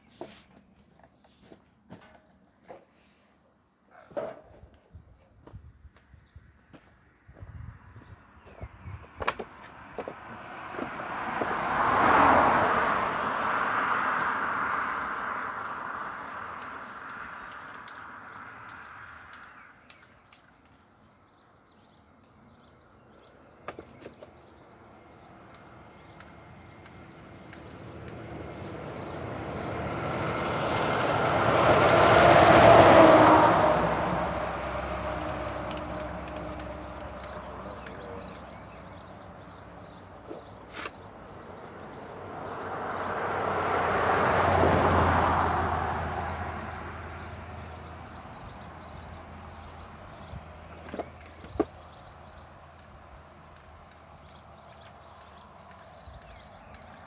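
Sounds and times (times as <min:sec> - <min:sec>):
vehicle passing by: 0:09.6 - 0:19.6, 0:24.7 - 0:57.0.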